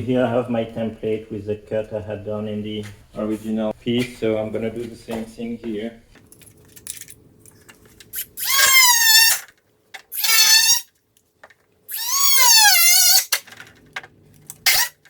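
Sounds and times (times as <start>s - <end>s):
tool squeaking on panel: 8.2s - 9.5s, 10.1s - 10.9s, 11.9s - 13.4s, 14.6s - 15.0s.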